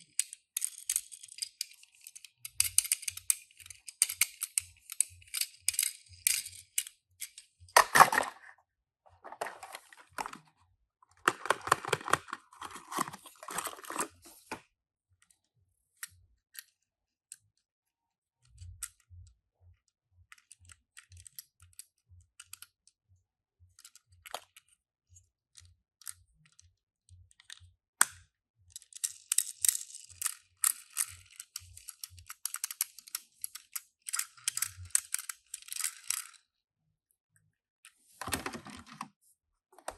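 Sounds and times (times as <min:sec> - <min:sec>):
toy cars clicking: 0:00.0 - 0:08.0, 0:28.7 - 0:36.4
packaging rustling: 0:09.2 - 0:10.5, 0:11.2 - 0:14.6.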